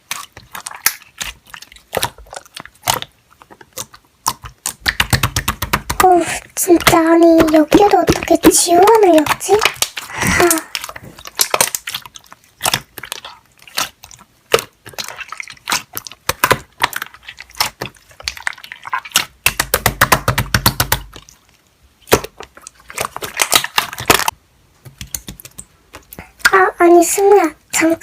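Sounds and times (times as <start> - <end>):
sharp clicks and taps: 3.7 - 11.8, 23.4 - 27.2.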